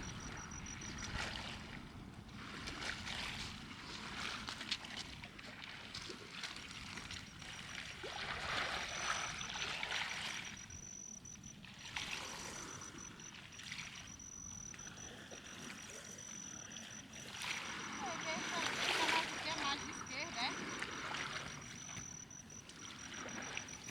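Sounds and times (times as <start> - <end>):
steady high-pitched tone: 0.0 - 1.0, 7.3 - 11.6, 12.2 - 23.9
water lapping in small waves: 0.0 - 23.9.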